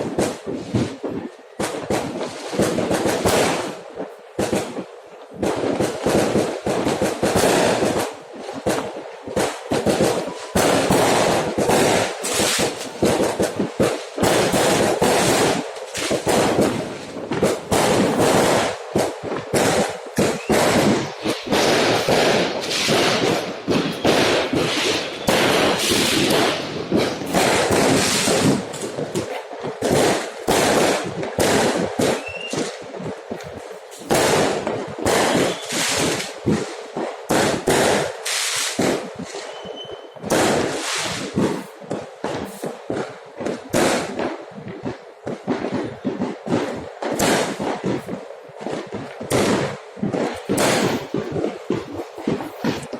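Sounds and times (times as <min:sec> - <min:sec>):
fireworks bangs and crackles: 0:00.0 - 0:52.9
rising firework whistle: 0:20.2 - 0:28.6, 0:32.0 - 0:32.8, 0:35.1 - 0:36.2, 0:38.3 - 0:41.2.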